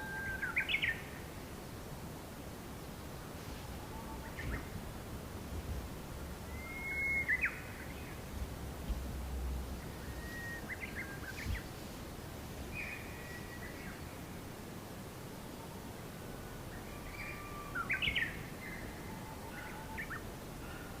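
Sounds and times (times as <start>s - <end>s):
birds whistling and chirping: 0.0s - 1.1s, 6.4s - 8.2s, 9.8s - 11.8s, 12.7s - 14.2s, 16.8s - 20.8s.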